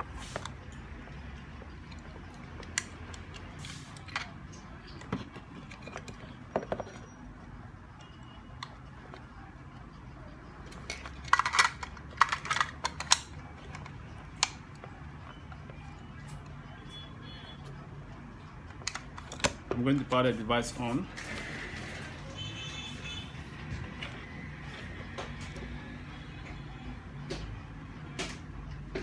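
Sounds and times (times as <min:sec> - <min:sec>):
objects clattering and rattling: 0:03.4 - 0:07.3, 0:10.6 - 0:15.4.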